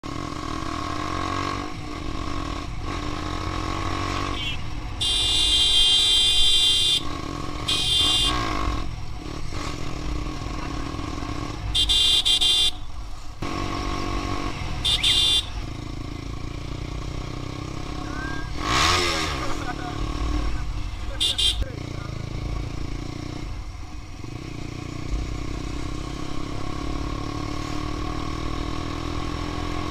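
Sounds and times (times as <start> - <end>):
motorcycle engine running: 0.0 - 29.9
vehicle horn honking: 4.2 - 8.7, 11.7 - 12.9, 14.8 - 15.7, 21.1 - 21.8.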